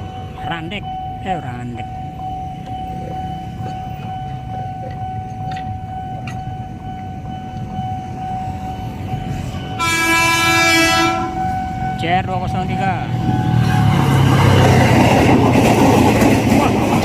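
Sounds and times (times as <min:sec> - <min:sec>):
steady high tone: 0:00.0 - 0:15.5
electric train rumbling past: 0:00.0 - 0:17.0
train horn blast: 0:09.7 - 0:11.6.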